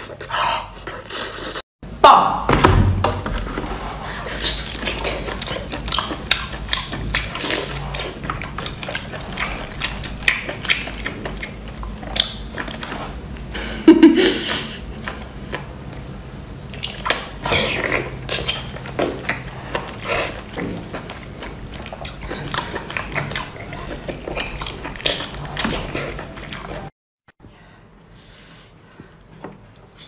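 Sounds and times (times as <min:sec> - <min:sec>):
loud thud: 0:02.4 - 0:03.3
wet chewing and smacking: 0:04.2 - 0:13.5, 0:16.7 - 0:26.9.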